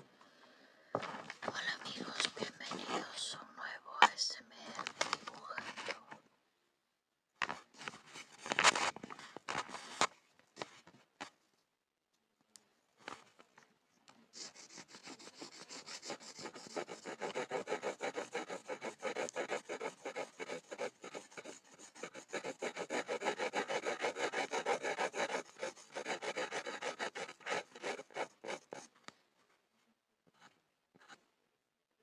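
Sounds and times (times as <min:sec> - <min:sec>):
pencil scribbling on wood: 0:14.4 - 0:28.9.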